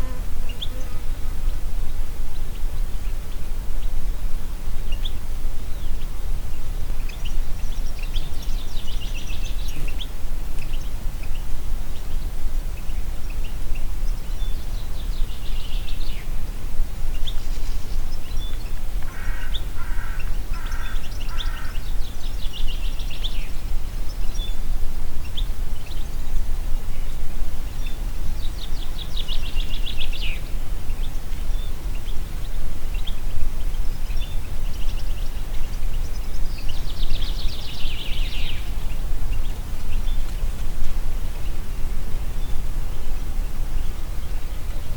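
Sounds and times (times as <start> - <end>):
wind through trees: 0.0 - 44.9
songbirds trilling: 17.1 - 26.3, 26.9 - 44.9.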